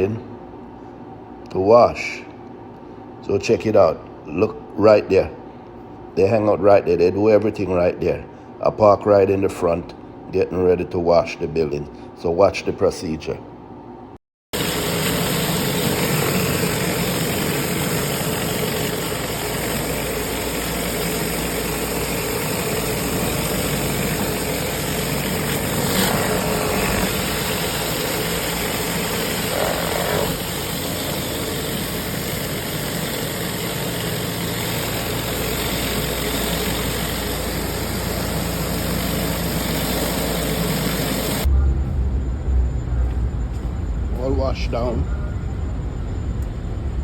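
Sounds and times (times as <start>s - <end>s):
pressure washer engine: 14.5s - 41.5s.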